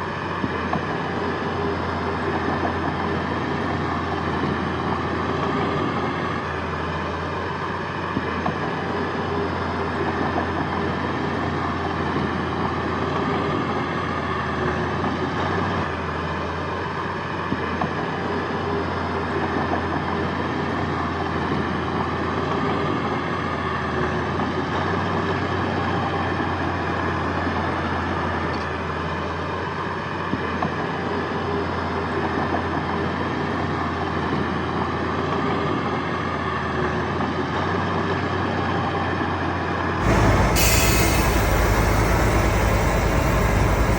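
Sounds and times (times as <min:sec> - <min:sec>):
heavy diesel machinery droning: 0:40.0 - 0:43.9.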